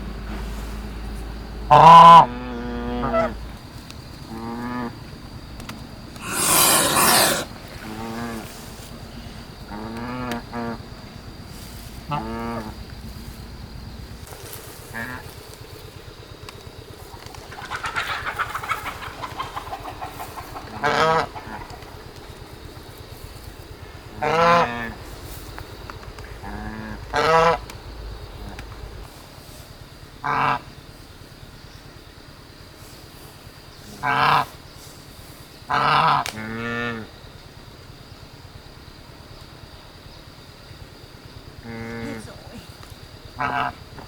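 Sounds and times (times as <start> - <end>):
geese honking: 1.7 - 3.4, 12.0 - 12.8, 17.2 - 22.2, 23.8 - 25.4, 26.0 - 29.0, 30.2 - 30.7, 34.0 - 34.5, 43.4 - 43.8.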